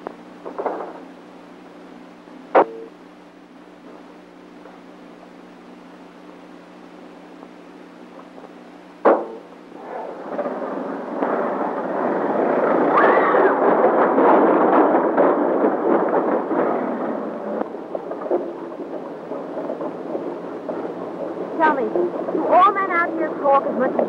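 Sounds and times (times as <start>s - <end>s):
sharp bang: 9.0s - 20.9s.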